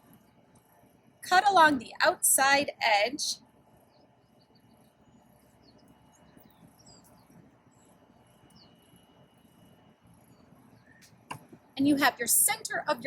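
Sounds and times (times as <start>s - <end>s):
faint bird chirps: 3.8s - 11.1s
faint high insect-like tone: 7.8s - 10.7s.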